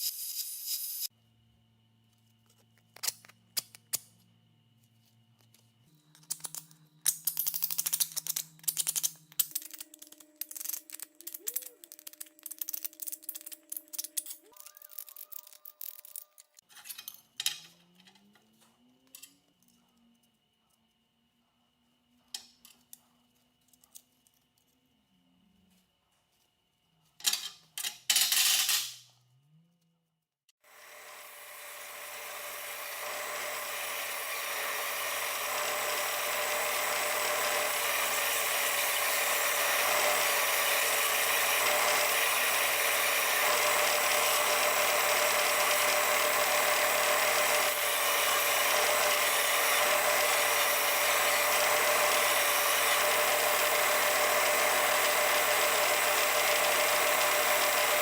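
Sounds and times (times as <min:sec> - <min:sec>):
power tool whining: 0:30.7 - 0:58.0.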